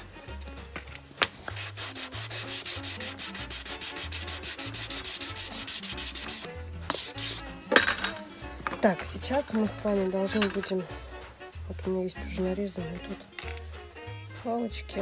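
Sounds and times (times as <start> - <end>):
nail file rubbing cardboard: 1.2 - 7.6.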